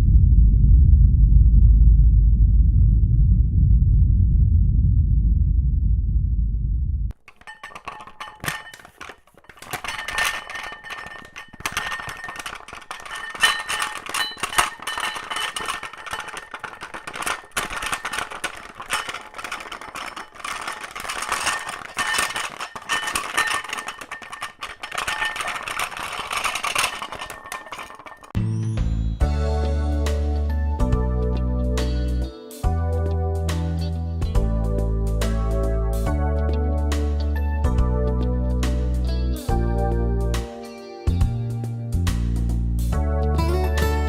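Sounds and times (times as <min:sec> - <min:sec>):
objects rattling and clinking: 0:07.1 - 0:28.4.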